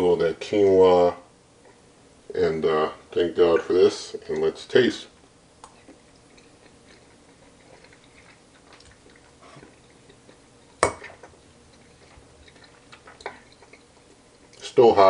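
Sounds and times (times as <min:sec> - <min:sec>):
person quietly chewing: 0:01.6 - 0:01.9, 0:05.6 - 0:14.8.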